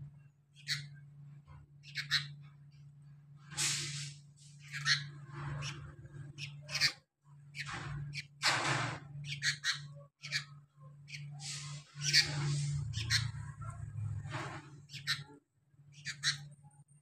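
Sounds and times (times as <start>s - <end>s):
bird scratchy calls: 0.6s - 0.9s, 1.8s - 2.4s, 3.6s - 7.0s, 9.2s - 16.6s.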